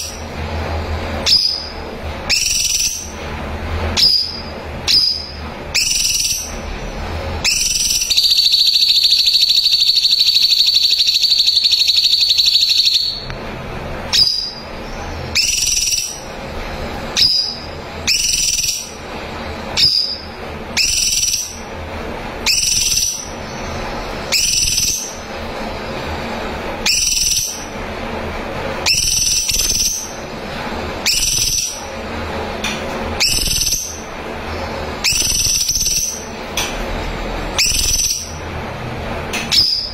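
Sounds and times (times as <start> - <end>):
bird rattling trill: 1.2 - 3.2, 3.9 - 6.6, 7.4 - 13.3, 14.1 - 16.3, 17.1 - 21.7, 22.4 - 25.3, 26.8 - 27.8, 28.8 - 31.9, 33.1 - 34.2, 34.9 - 36.4, 37.6 - 38.4
bird upward whistled notes: 2.3 - 3.1, 4.0 - 6.5, 7.4 - 13.3, 15.3 - 16.2, 17.2 - 19.0, 24.3 - 25.2, 26.8 - 27.7, 33.2 - 34.0, 35.0 - 36.3, 37.6 - 38.4.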